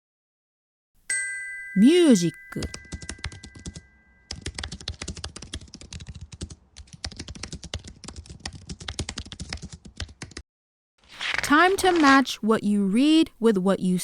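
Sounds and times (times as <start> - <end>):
rapid typing on keyboard: 2.7 - 10.4.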